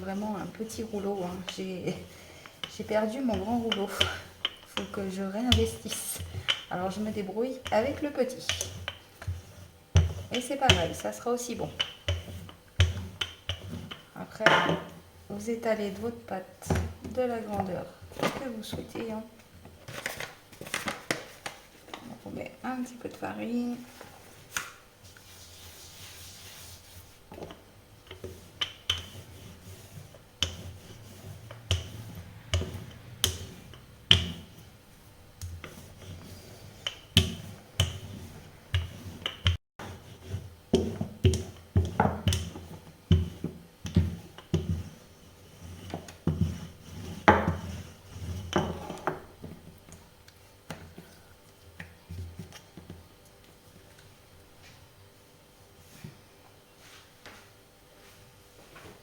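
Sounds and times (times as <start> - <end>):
rolling pin rubbing on dough: 0.0 - 14.1, 23.7 - 49.6
rolling pin knocking and tapping: 10.0 - 11.0, 11.7 - 15.0, 27.3 - 29.3, 30.4 - 34.6, 36.8 - 39.9, 40.7 - 44.9, 45.8 - 47.8.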